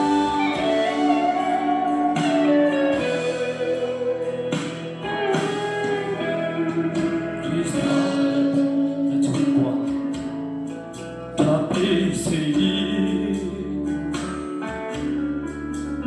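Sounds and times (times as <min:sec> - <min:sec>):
guitar: 0:00.0 - 0:16.0
person singing: 0:04.2 - 0:10.2, 0:11.4 - 0:14.2.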